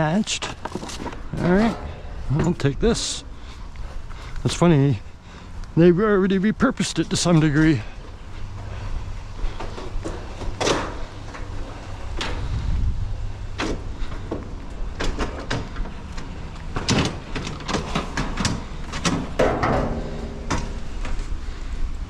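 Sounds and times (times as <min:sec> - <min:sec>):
low rumble: 0:01.2 - 0:04.3
scrap metal knocks and clanks: 0:01.3 - 0:03.2, 0:16.8 - 0:21.2
metal scraping: 0:01.3 - 0:03.3.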